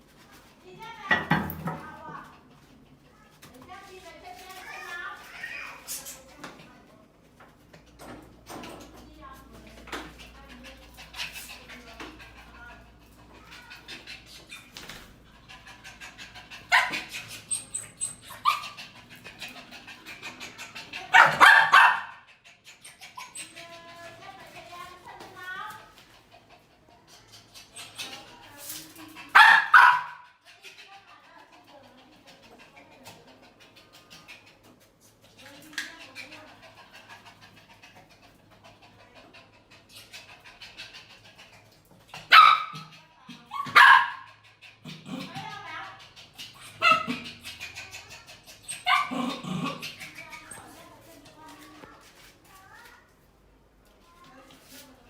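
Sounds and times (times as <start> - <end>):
dog barking: 16.7 - 17.0, 21.1 - 22.2, 29.3 - 30.2, 42.3 - 42.9, 43.5 - 44.3, 46.8 - 47.2, 48.8 - 49.8.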